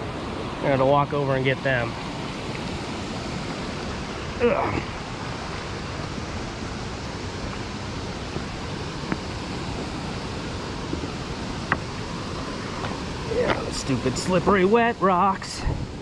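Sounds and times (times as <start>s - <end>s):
rain: 0.0s - 16.0s
water rushing over spillway: 0.0s - 16.0s.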